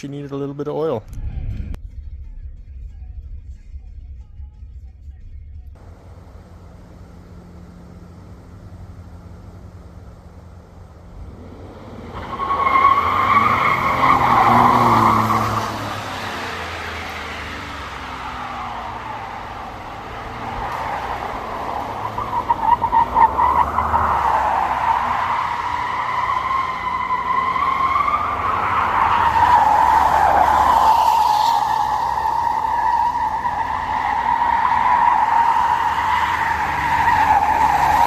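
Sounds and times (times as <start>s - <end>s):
tyres squealing on pavement: 11.9s - 38.0s.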